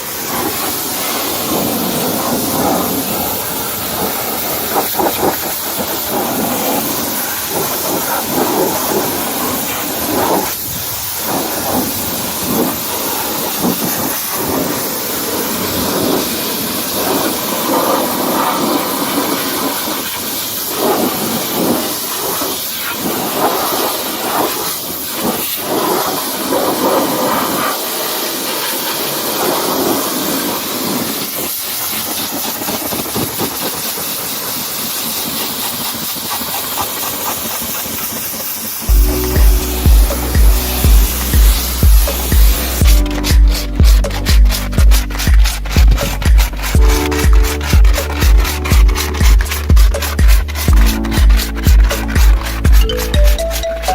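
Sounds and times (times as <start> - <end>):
pressure washer spraying water: 0.0 - 53.9.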